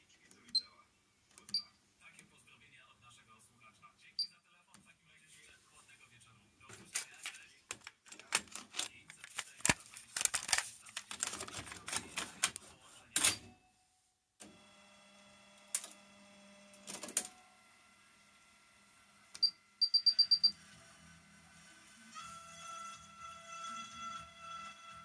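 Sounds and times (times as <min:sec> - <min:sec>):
high beeps: 0:19.4 - 0:20.5.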